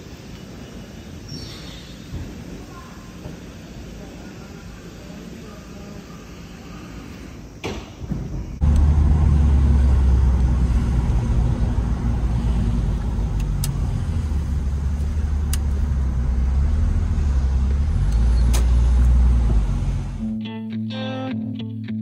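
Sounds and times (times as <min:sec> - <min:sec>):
car engine droning while driving: 0:08.6 - 0:20.3.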